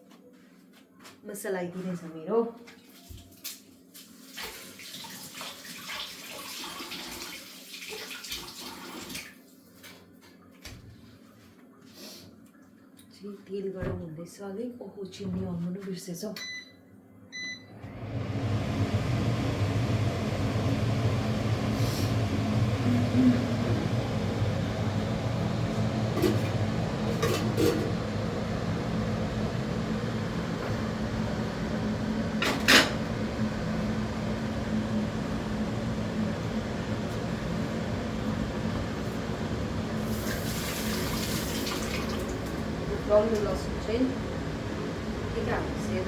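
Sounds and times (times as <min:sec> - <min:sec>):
extractor fan humming: 0:17.4 - 0:46.0.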